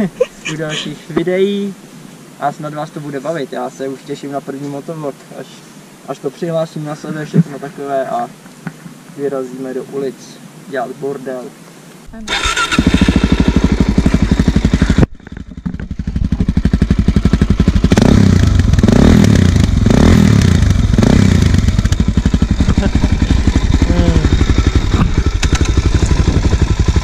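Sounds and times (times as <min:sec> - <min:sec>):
motorcycle engine idling and revving: 0:12.3 - 0:27.0.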